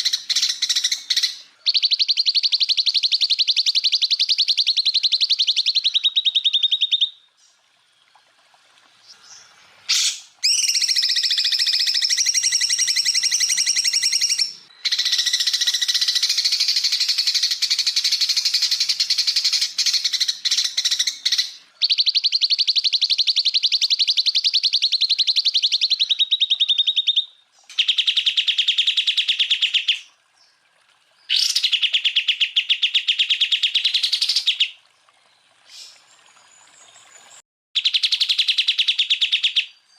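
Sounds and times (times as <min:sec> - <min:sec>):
bird singing trilled bursts: 0:00.0 - 0:07.5, 0:09.2 - 0:30.1.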